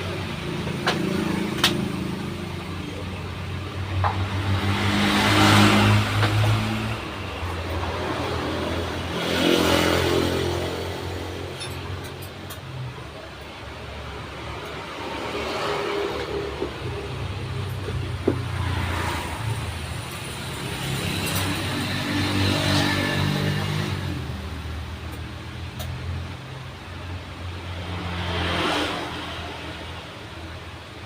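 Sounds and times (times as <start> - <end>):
vehicles passing by: 0.0 - 31.0.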